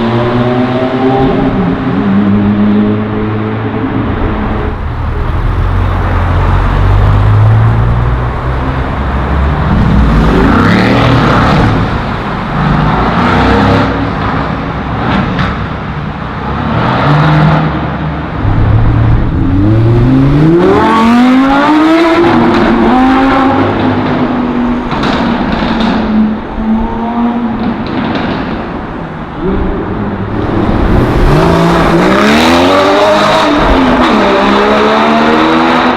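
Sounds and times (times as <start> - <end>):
car engines accelerating: 0.0 - 35.9
engine revving: 4.1 - 14.0, 18.4 - 23.8, 30.3 - 35.9.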